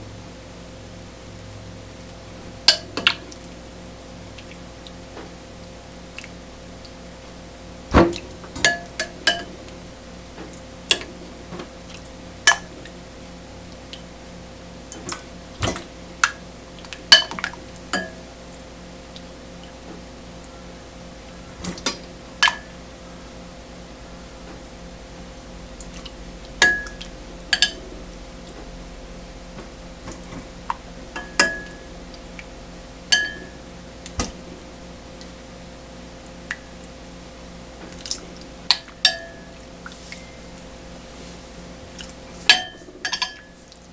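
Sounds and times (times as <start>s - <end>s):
faint steady hum: 0.0s - 43.9s
dishes and utensils clinking: 26.6s - 27.9s, 31.2s - 31.9s, 33.1s - 33.6s, 42.5s - 43.6s.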